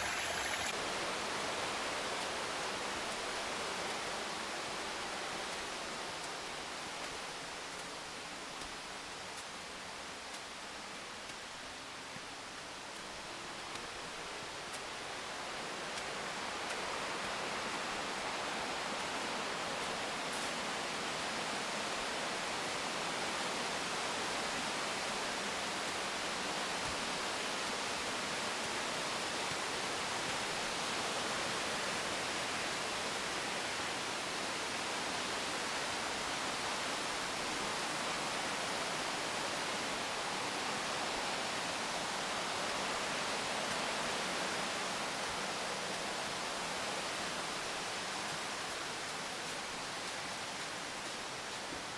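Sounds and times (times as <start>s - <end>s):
waterfall rushing: 0.0s - 0.7s.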